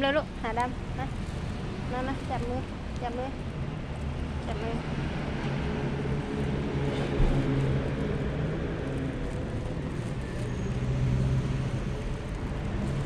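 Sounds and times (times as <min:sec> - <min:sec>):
road noise: 0:00.0 - 0:13.0
vehicle engine humming: 0:00.0 - 0:13.0.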